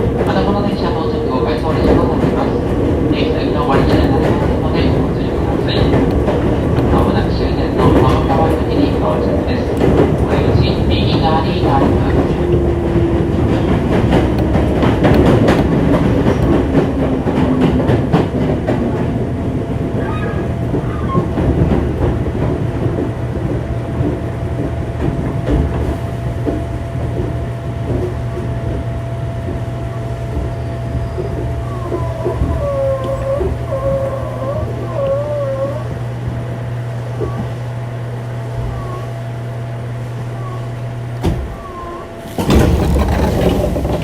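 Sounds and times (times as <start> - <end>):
train wheels clicking over rail joints: 0.0 - 19.2, 42.2 - 44.0.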